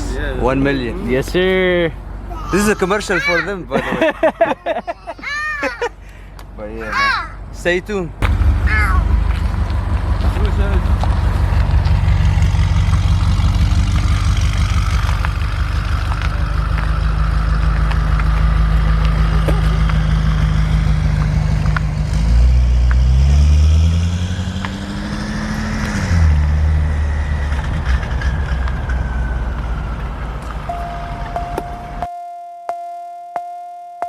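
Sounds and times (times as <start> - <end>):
car engine idling and revving: 6.6 - 32.1.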